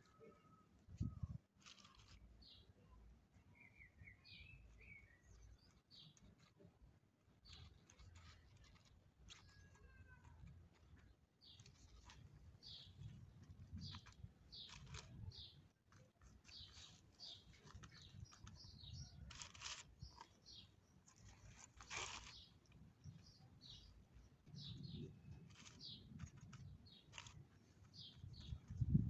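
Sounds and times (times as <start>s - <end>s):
birds chirping: 3.5s - 6.5s, 9.3s - 29.0s.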